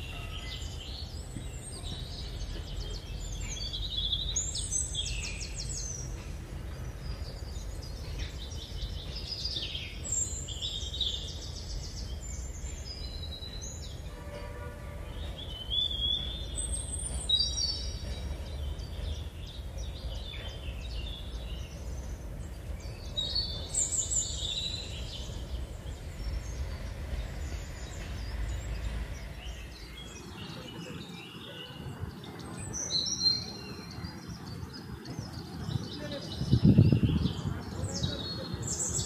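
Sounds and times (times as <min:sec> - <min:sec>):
birds whistling and chirping: 0:00.0 - 0:14.5, 0:15.1 - 0:39.0.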